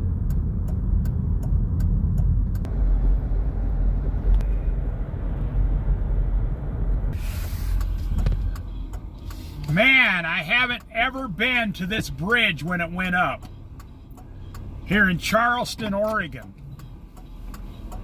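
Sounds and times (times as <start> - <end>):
vehicle idling: 0.0 - 18.0
short hiss: 7.2 - 8.2.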